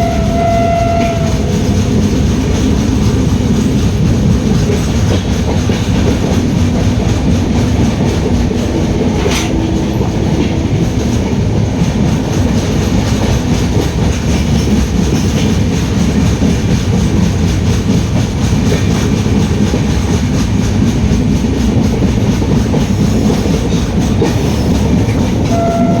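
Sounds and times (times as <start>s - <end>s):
train wheels on rails: 0.0s - 26.0s.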